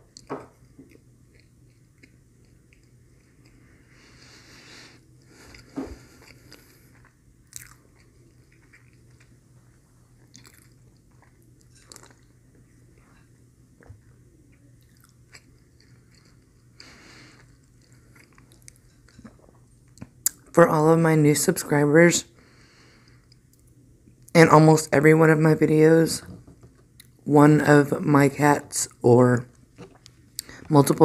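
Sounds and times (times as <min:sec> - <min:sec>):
soft chewing: 0:00.0 - 0:20.5, 0:22.7 - 0:24.3, 0:29.5 - 0:30.7.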